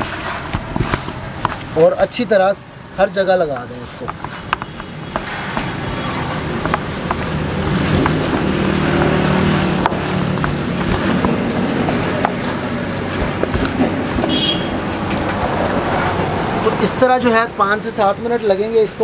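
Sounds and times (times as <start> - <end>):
hands rustling chicken in spice: 0.0 - 15.6
small knocks: 3.5 - 15.5.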